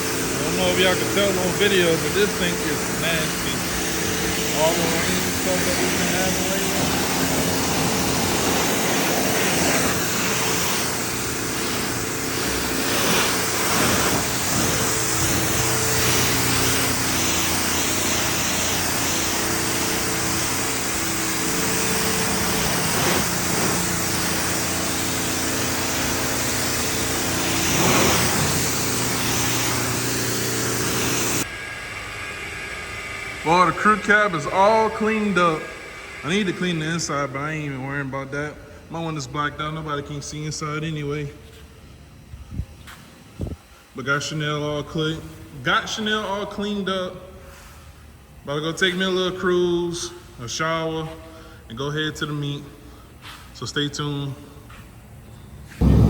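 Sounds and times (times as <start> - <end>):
water spray hissing: 0.0 - 31.5
pressure washer motor hum: 0.0 - 39.2, 55.7 - 56.0.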